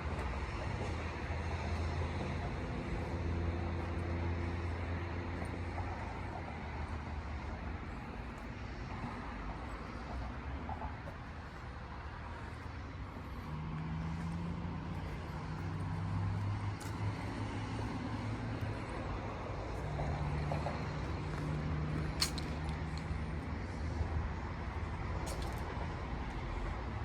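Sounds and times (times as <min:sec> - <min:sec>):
outdoor background noise: 0:00.0 - 0:27.0.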